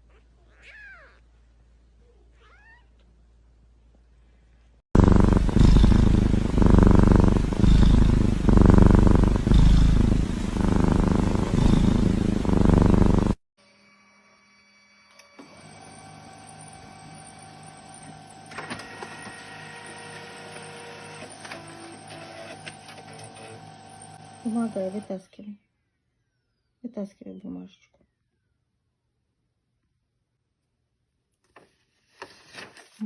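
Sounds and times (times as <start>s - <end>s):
faint steady hum: 0.0s - 13.4s
cat purring loudly: 5.0s - 13.4s.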